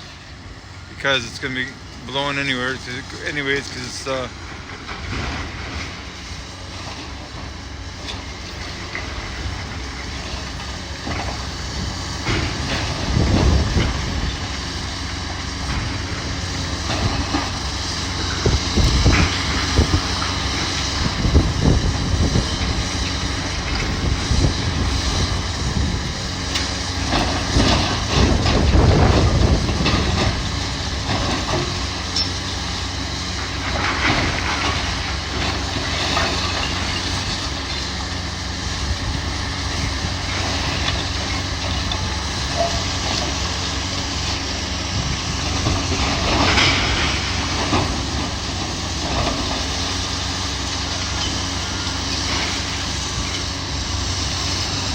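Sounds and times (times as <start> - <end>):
diesel engine running: 0.0 - 54.9
debris crunching and clattering: 40.3 - 51.3.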